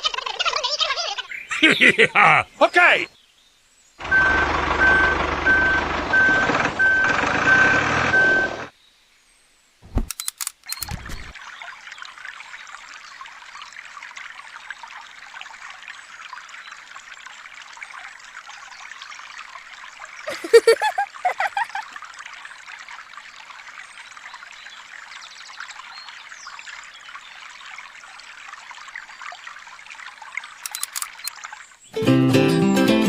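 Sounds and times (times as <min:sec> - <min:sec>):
truck engine running: 0:04.0 - 0:08.7
reversing beeps: 0:04.1 - 0:08.7
sharp clicks: 0:09.8 - 0:11.4, 0:30.6 - 0:31.4
water trickling into tank: 0:10.7 - 0:32.0.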